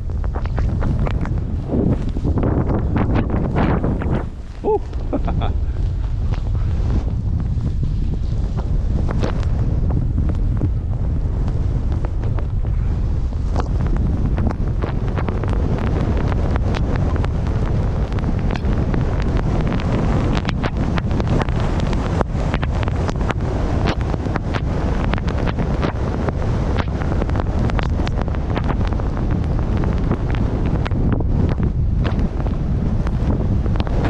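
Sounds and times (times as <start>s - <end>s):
wind buffeting microphone: 0.0s - 34.0s
small sharp ticks: 13.4s - 26.0s, 26.8s - 32.2s.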